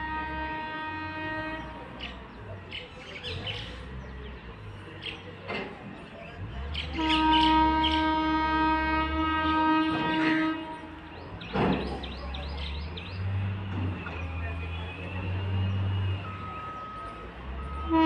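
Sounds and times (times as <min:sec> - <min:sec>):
locomotive horn blast: 0:00.0 - 0:02.1, 0:06.8 - 0:11.4, 0:13.2 - 0:18.0
low locomotive rumble: 0:00.0 - 0:18.0.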